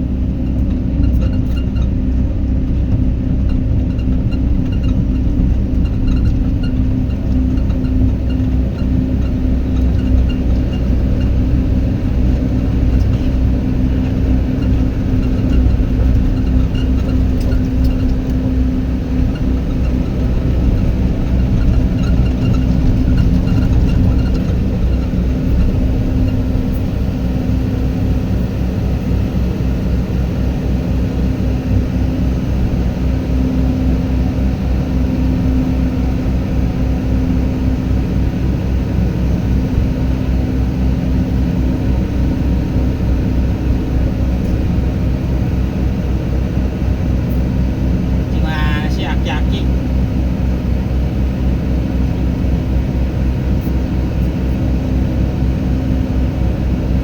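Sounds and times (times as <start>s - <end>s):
diesel engine rumbling: 0.0s - 57.0s.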